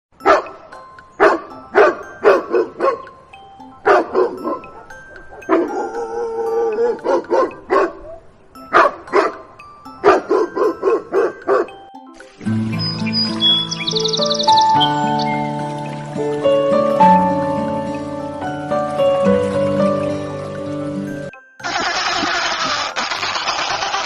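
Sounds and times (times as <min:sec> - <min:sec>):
dog barking: 0:00.2 - 0:00.6, 0:01.2 - 0:03.0, 0:03.9 - 0:06.0, 0:06.9 - 0:09.4, 0:10.0 - 0:11.8
faint music: 0:00.2 - 0:21.4.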